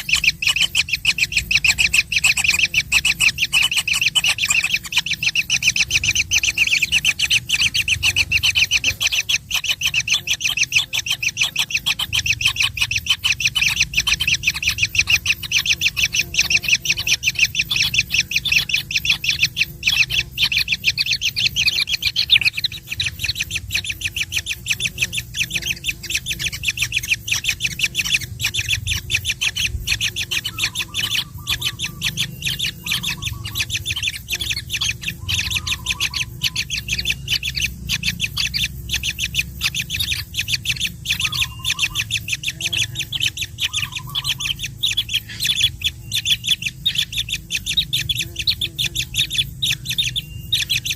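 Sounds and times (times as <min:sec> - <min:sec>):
baby birds squawking chirps: 0:00.0 - 0:50.9
faint steady hum: 0:00.0 - 0:50.9.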